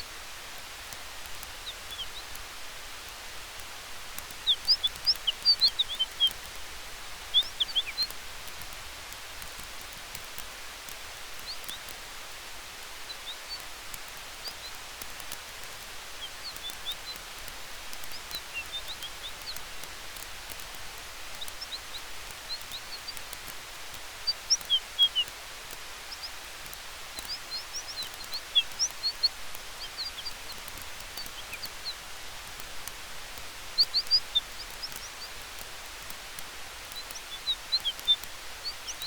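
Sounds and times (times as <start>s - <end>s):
faint fire crackling: 0.0s - 39.0s
fire and wind hiss: 0.0s - 39.0s.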